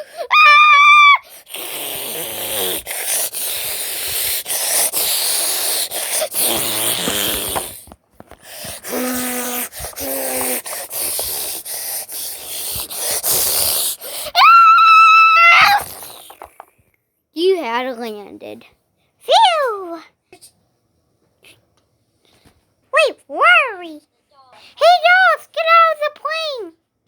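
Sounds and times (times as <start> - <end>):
child making plane noise: 0.0 - 7.8, 8.6 - 16.0.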